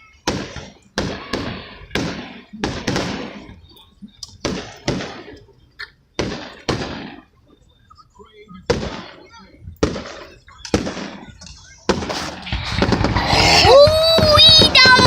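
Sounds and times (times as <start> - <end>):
fireworks bursting with bangs: 0.0 - 7.6, 8.6 - 15.0.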